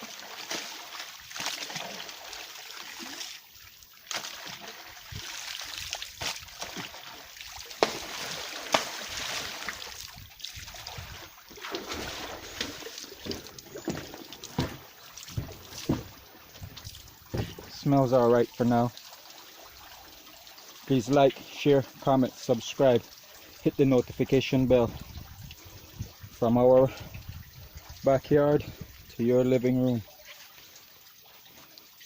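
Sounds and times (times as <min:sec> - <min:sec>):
water splashing and sloshing: 0:00.0 - 0:32.0
sharp knocks: 0:13.2 - 0:17.7.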